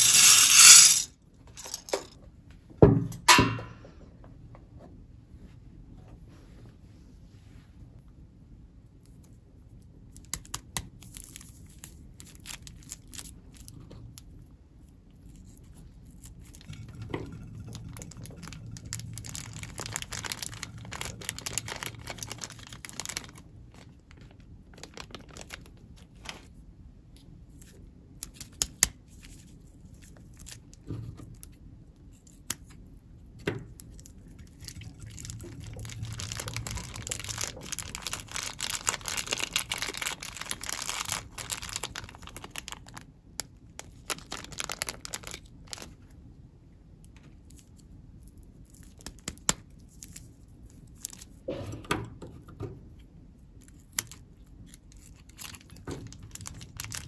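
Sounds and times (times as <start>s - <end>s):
plastic bags crinkling: 17.9s - 26.3s, 34.6s - 43.1s, 43.8s - 46.0s, 55.1s - 57.0s
plastic bag tearing: 19.2s - 25.7s, 35.1s - 43.0s, 43.8s - 45.9s, 55.0s - 57.0s.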